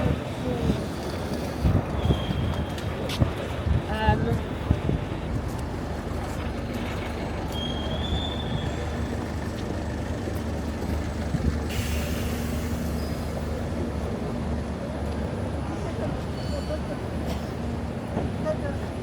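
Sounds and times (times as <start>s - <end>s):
heavy vehicle rumbling: 0.0s - 19.0s
high squeal: 7.5s - 9.0s
hiss: 11.7s - 13.2s.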